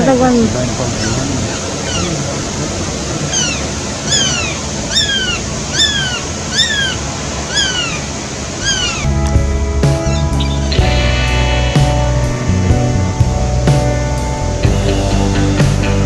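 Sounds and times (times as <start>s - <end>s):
bird calling: 0.0s - 9.3s, 10.0s - 15.2s
background hiss: 0.0s - 16.0s
music: 9.1s - 16.0s.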